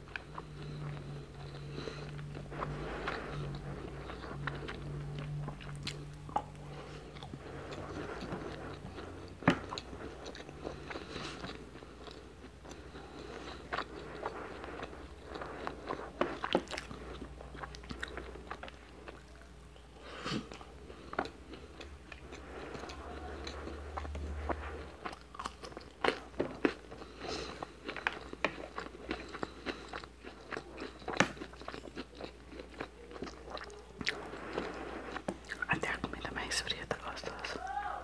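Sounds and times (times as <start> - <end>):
chewing and crunching: 0.0 - 37.6
steady low hum: 0.0 - 38.0.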